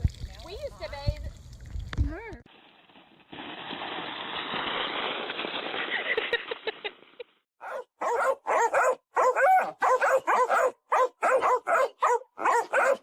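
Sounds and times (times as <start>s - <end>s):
dog yipping barks: 7.6s - 13.0s.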